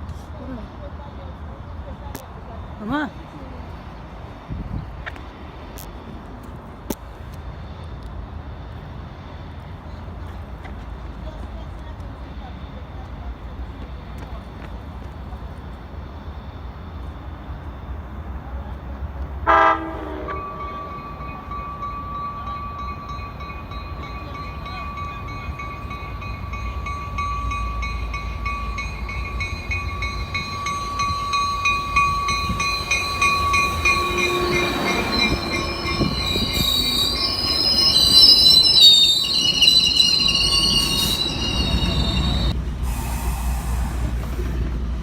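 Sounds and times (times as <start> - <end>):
train rumble: 0.0 - 45.0
train horn blast: 19.4 - 21.1, 33.1 - 36.7
train wheels squealing on rails: 19.6 - 44.7.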